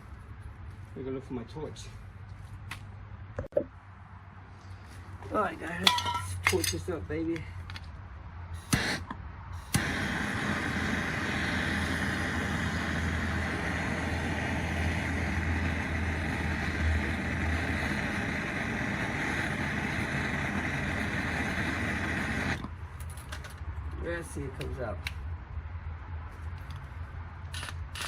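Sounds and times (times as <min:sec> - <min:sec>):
gas torch hissing: 0:08.6 - 0:22.6.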